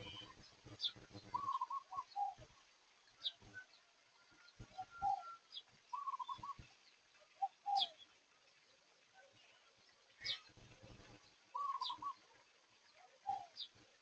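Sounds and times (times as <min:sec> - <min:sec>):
birds calling: 0:00.0 - 0:02.5, 0:04.6 - 0:06.7, 0:07.3 - 0:08.1, 0:10.2 - 0:12.3, 0:13.2 - 0:13.7.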